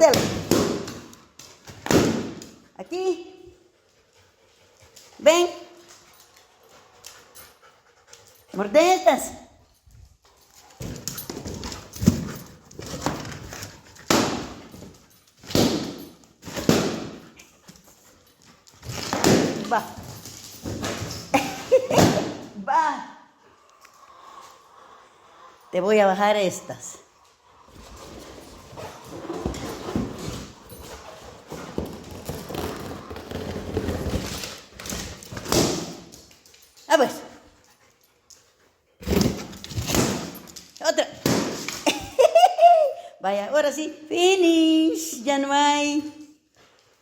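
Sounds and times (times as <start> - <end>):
rubbery balloon rustling: 31.3 - 35.6.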